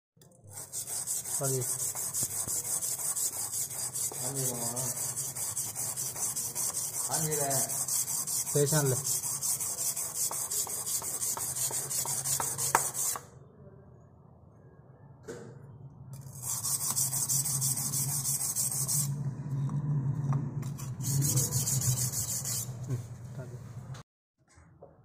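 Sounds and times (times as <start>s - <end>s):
sandpaper rubbing on wood: 0.5s - 13.2s, 16.3s - 19.1s, 20.8s - 22.8s.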